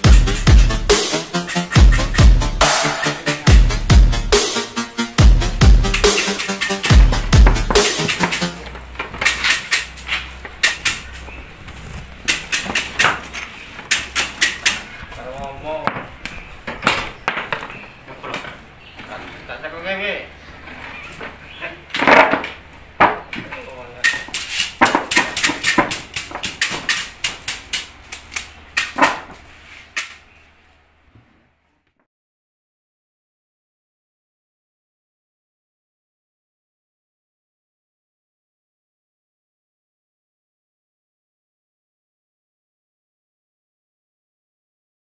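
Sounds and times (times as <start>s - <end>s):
sharp clacks and knocks: 6.0s - 11.2s, 12.1s - 14.9s, 21.9s - 29.4s
sharp clicks: 13.9s - 15.6s.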